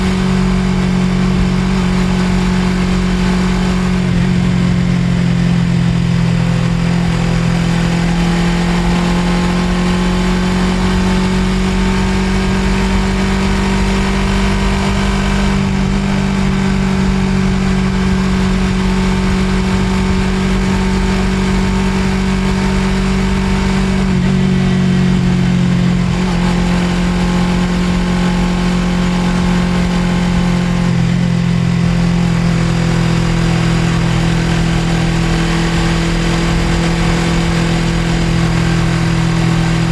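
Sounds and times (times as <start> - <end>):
motorcycle engine cruising: 0.0 - 39.9
road noise: 0.0 - 39.9.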